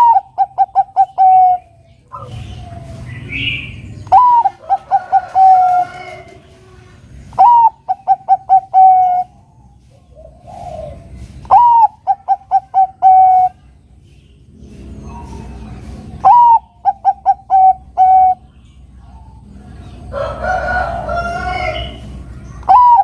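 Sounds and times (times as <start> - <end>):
dove cooing: 0.0 - 13.6, 15.1 - 18.4, 22.7 - 23.0.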